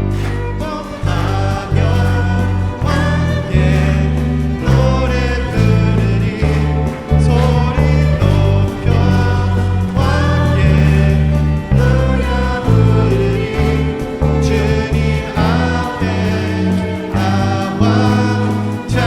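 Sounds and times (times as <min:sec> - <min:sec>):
bass line: 0:00.0 - 0:19.0
group singing worship song: 0:00.0 - 0:19.0
live band playing: 0:00.0 - 0:19.0.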